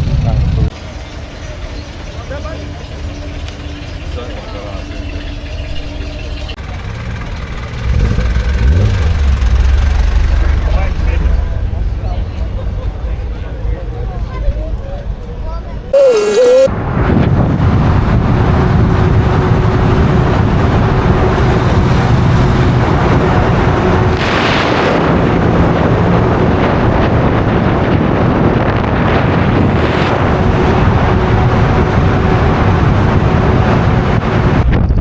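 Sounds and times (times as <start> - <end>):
vehicle running noise: 0.0 - 14.1, 16.0 - 35.0
wind buffeting microphone: 16.8 - 35.0.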